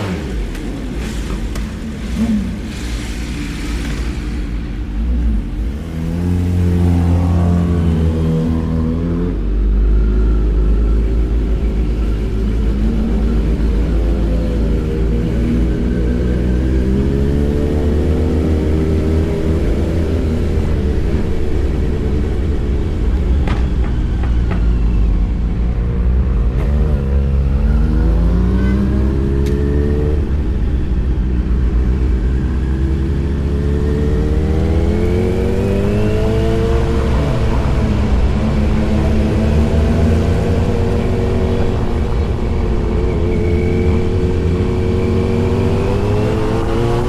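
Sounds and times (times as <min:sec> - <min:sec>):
motorcycle engine accelerating: 0:26.3 - 0:47.0.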